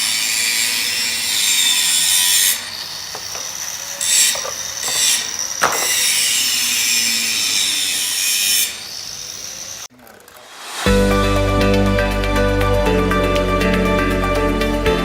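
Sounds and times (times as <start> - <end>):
harsh hissing tool rasp: 0.0 - 10.9.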